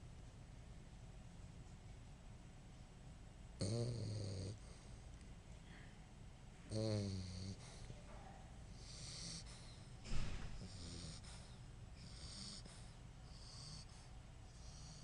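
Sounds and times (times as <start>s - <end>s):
dog snorting: 3.6s - 5.0s, 6.7s - 7.9s, 8.7s - 15.0s
dog snoring wheezy breaths: 3.6s - 5.1s, 6.7s - 8.0s, 8.7s - 15.0s.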